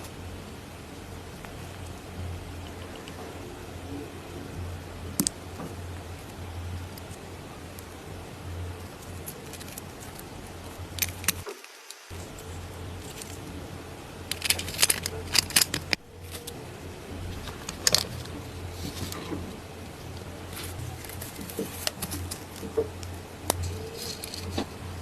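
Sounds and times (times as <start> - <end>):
steady low hum: 0.0 - 11.4, 12.1 - 25.0
metallic clinks and jingles: 14.3 - 16.5.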